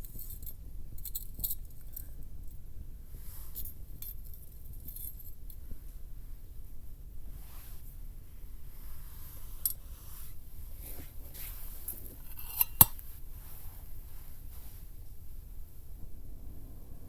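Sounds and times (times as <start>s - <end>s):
faint handling rustles: 0.0s - 16.2s
metal cookware clinking: 12.2s - 13.0s.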